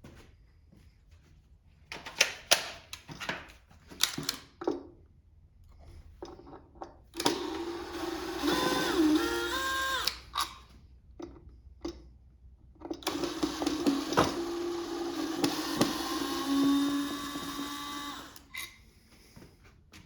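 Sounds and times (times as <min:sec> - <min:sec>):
small power tool motor humming: 0:07.2 - 0:10.6, 0:13.0 - 0:18.8.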